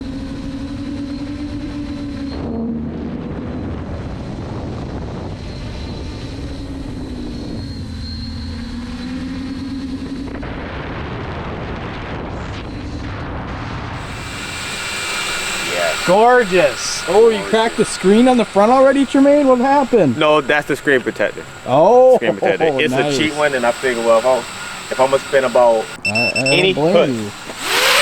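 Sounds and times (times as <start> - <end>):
rush of air noise: 14.0 - 26.1
drone motors whining: 14.0 - 28.0.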